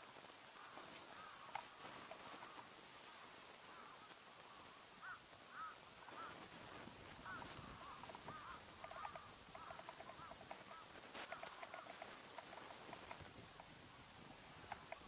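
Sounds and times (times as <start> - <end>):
background hiss: 0.0 - 15.0
faint bird chirps: 0.0 - 15.0.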